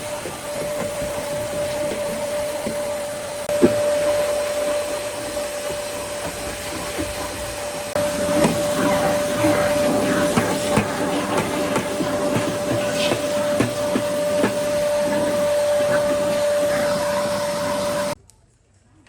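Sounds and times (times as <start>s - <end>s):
small motor whining: 0.0s - 18.2s.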